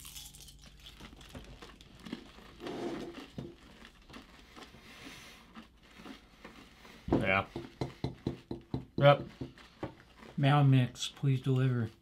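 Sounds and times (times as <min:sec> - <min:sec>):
candy shells being chewed: 0:00.0 - 0:12.0.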